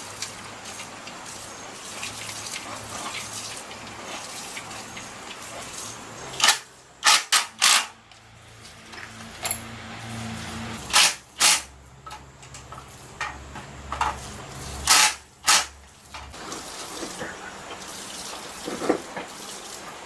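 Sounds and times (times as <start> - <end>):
loud short hiss bursts: 10.8 - 11.7, 14.6 - 15.8.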